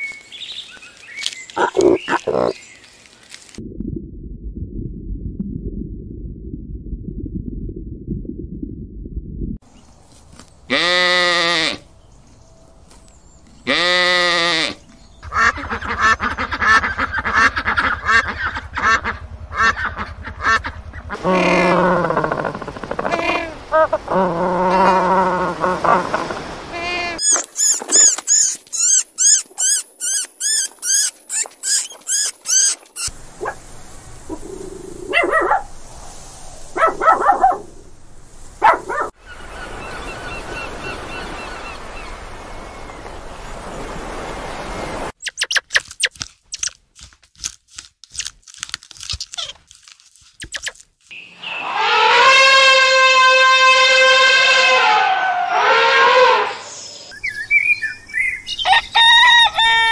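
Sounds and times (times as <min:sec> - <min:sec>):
elephant trumpeting: 0:19.6 - 0:33.1, 0:51.4 - 0:56.9
animal hiss: 0:33.3 - 0:36.8.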